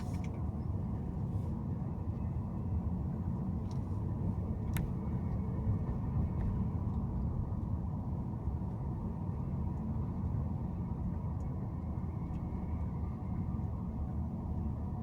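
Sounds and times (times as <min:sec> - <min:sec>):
car driving rumble: 0:00.0 - 0:15.0.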